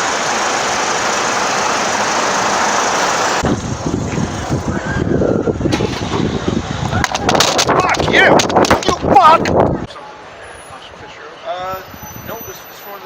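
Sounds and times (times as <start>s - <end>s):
traffic hiss on wet road: 0.0s - 4.8s.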